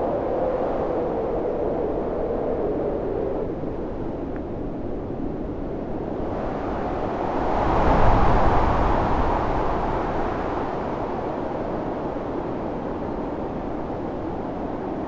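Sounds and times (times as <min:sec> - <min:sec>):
storm wind gusting: 0:06.1 - 0:13.0.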